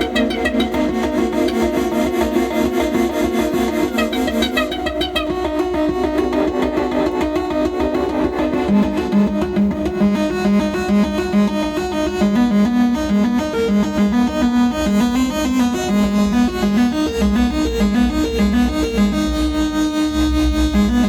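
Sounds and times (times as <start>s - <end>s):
synthesizer note sequence: 3.5s - 5.7s, 14.8s - 21.0s
low bass tone: 15.8s - 21.0s.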